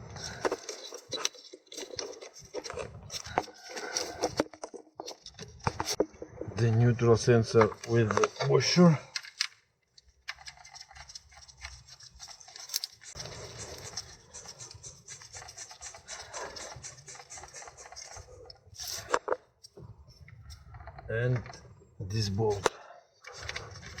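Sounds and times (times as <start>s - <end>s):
hands rubbing and scraping parts: 0.0s - 6.7s, 7.4s - 24.0s
light clicks of parts: 7.6s - 13.2s.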